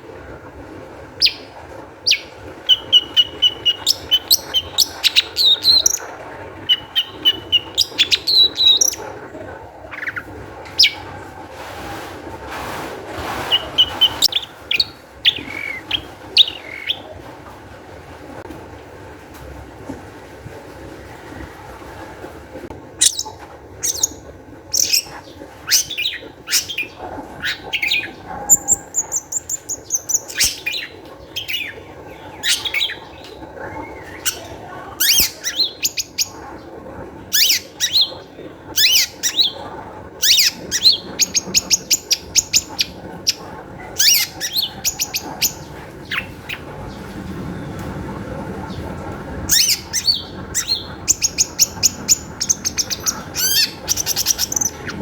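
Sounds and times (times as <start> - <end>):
shrike singing high-pitched calls: 2.1 - 9.0, 24.8 - 31.8, 40.2 - 46.3, 49.5 - 55.0.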